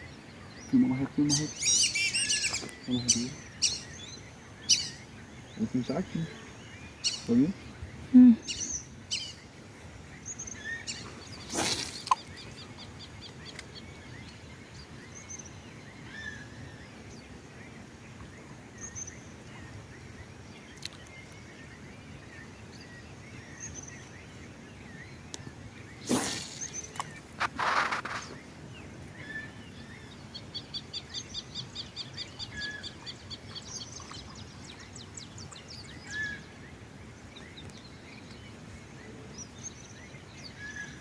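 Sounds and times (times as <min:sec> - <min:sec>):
birds chirping and calling: 0:00.0 - 0:17.7, 0:22.4 - 0:28.5
steady outdoor hiss: 0:00.0 - 0:41.0.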